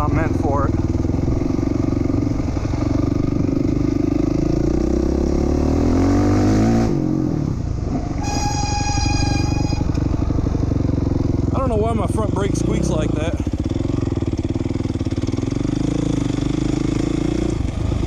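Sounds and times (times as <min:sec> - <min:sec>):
motorcycle engine revving: 0:00.0 - 0:18.0
brake squealing: 0:07.8 - 0:11.5.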